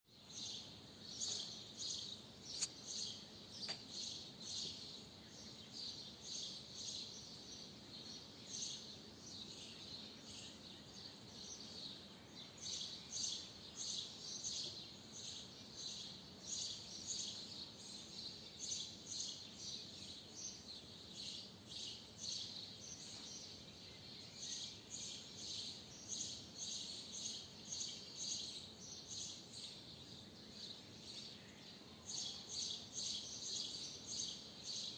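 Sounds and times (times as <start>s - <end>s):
sharp click: 2.5s - 2.8s.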